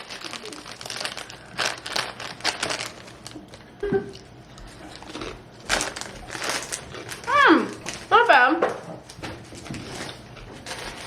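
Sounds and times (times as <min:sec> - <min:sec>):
foil snack pouch crinkling: 0:00.0 - 0:03.7, 0:04.8 - 0:08.1
chips crunching: 0:00.0 - 0:08.1.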